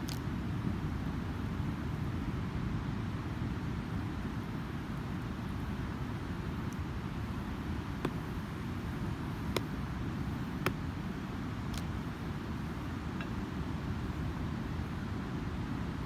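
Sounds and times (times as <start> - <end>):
campfire crackling: 5.2 - 14.2.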